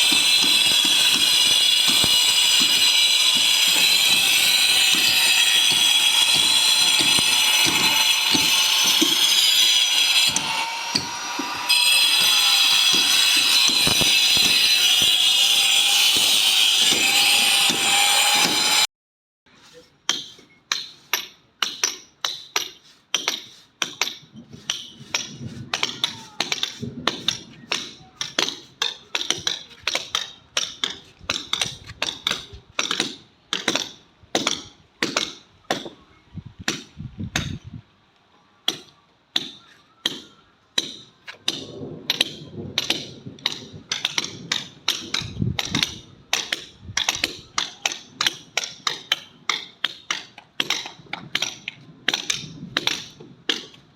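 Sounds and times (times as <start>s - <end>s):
hammer blows ringing: 0.0s - 18.9s.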